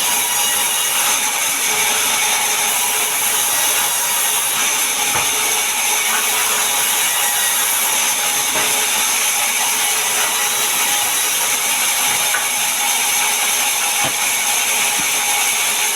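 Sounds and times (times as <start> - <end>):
power saw cutting wood: 0.0 - 15.9.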